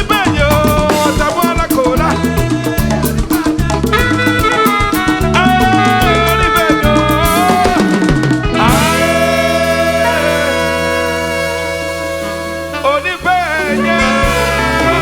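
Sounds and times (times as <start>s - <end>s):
band playing traditional music: 0.0s - 15.0s
driving drum rhythm: 0.0s - 15.0s.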